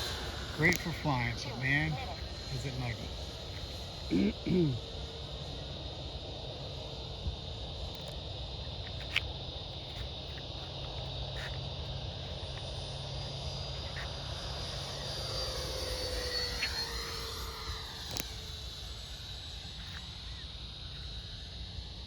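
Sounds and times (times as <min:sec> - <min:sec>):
chorus of night creatures: 0:00.0 - 0:22.0
model jet whining past: 0:00.0 - 0:22.0
small clicks: 0:18.0 - 0:18.4.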